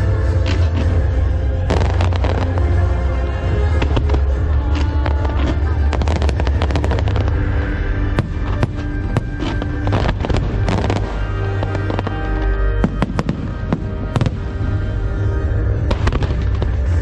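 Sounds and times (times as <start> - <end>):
loud music with heavy bass: 0.0 - 12.2
fireworks bangs and crackling: 0.0 - 17.0.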